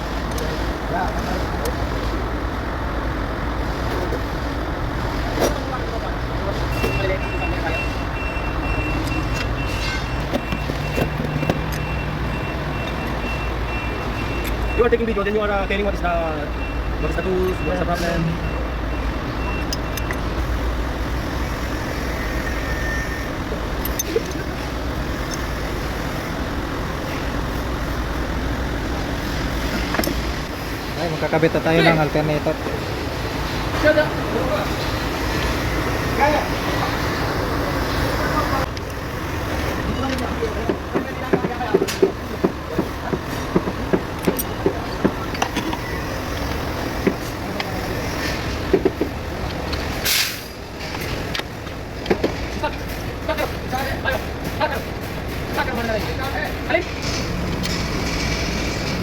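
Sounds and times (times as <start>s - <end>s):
low vehicle rumble: 16.4s - 59.0s
brief hiss: 50.0s - 50.6s.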